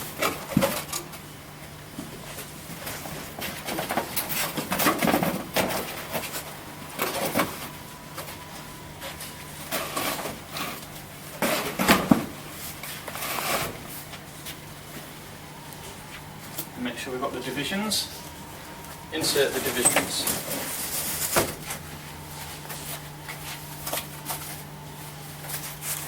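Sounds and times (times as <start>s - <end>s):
cardboard scraping and creaking: 2.9s - 14.5s, 19.0s - 26.0s.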